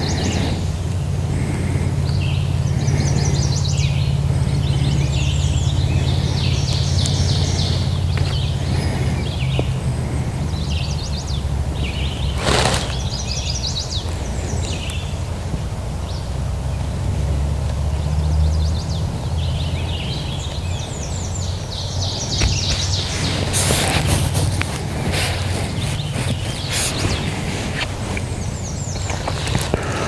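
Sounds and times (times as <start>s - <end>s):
songbirds chirping: 0.0s - 30.0s
brief scuff: 22.4s - 27.8s.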